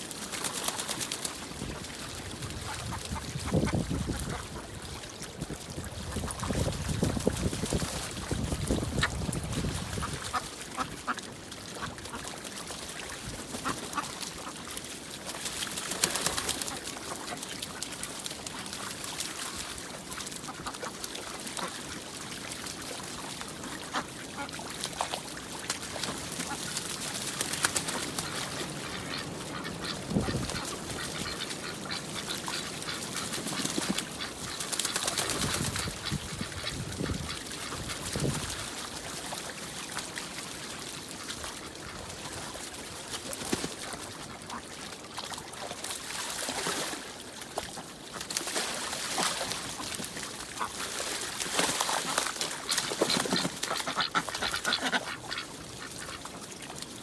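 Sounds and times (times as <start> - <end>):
ducks quacking: 27.8 - 38.6, 52.0 - 56.4.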